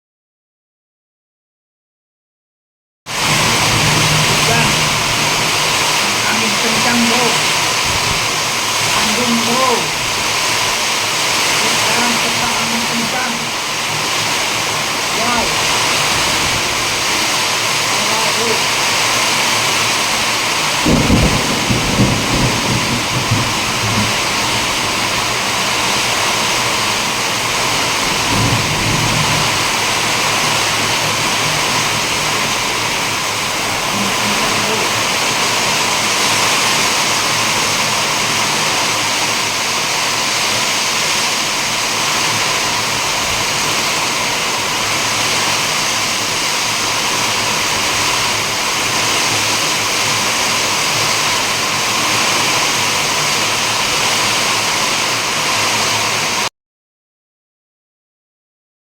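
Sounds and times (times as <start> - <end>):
heavy rain in strong wind: 3.1 - 56.5
low rumbles: 3.2 - 17.2.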